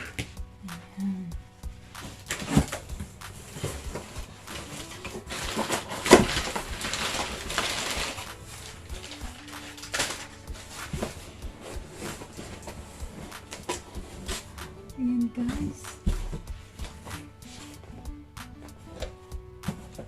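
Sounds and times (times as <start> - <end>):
packaging tearing: 2.0 - 11.2
packaging crinkling and rustling: 2.0 - 14.5.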